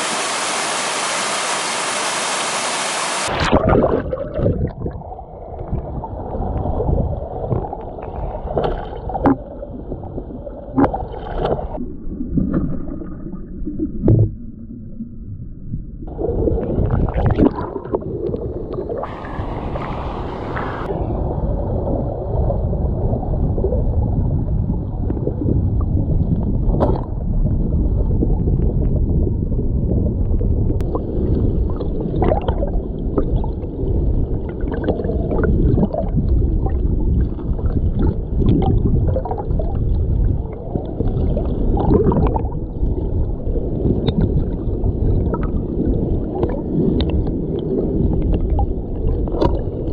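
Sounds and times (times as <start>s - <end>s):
underwater stream gurgling: 0.0s - 49.9s
splash-like hiss: 19.0s - 20.9s.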